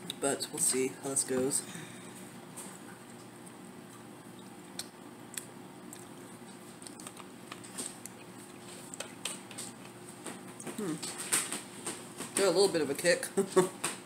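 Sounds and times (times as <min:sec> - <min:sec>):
low room hum: 0:00.0 - 0:14.0
mouth clicks and smacks: 0:04.3 - 0:10.0.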